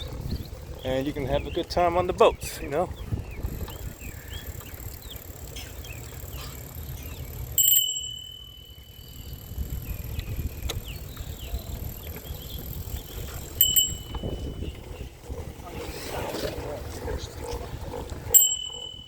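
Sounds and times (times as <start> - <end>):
bicycle tyre rumble and wind: 0.0 - 19.0
bicycle squeaks: 3.4 - 15.3, 18.3 - 19.0
bicycle bell ring: 7.5 - 10.4, 13.4 - 14.7, 18.3 - 19.0.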